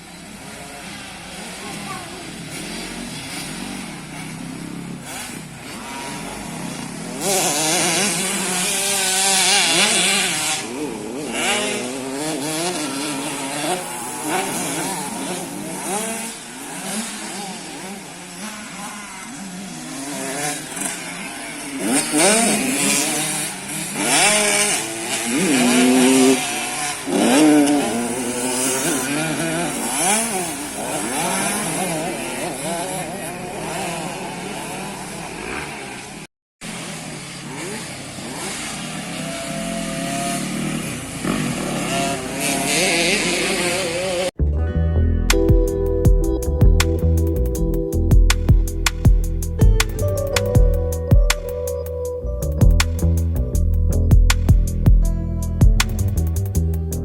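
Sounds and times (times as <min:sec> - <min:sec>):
dirt bikes revving and passing: 0:00.0 - 0:44.3.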